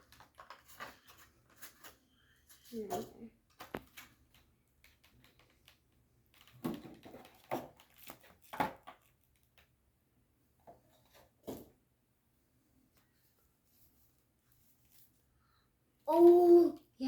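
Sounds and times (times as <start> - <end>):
packaging crinkling and clicking: 3.6 - 9.7.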